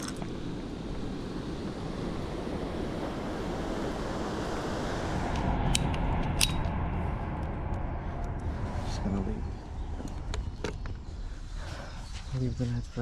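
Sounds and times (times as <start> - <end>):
wind on microphone: 0.0 - 12.1.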